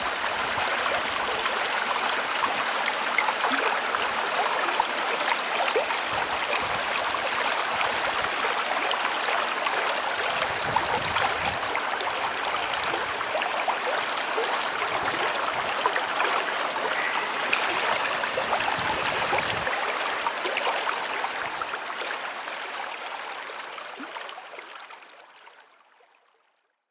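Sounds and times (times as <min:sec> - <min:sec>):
waterfall splashing into pond: 0:00.0 - 0:22.6.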